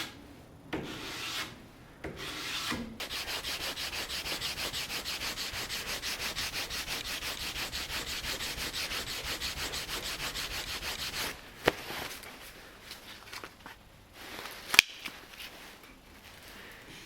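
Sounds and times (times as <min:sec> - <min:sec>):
sandpaper rubbing on wood: 0:00.9 - 0:01.5, 0:02.2 - 0:11.4.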